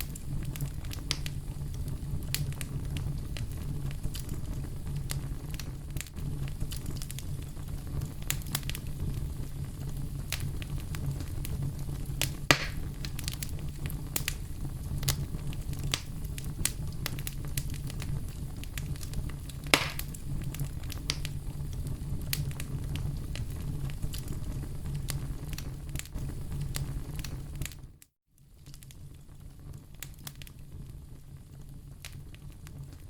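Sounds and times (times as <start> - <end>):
campfire crackling: 0.0 - 33.0
low rumble of flames: 0.0 - 33.0
loud wood pops: 12.5 - 12.9, 19.6 - 20.2.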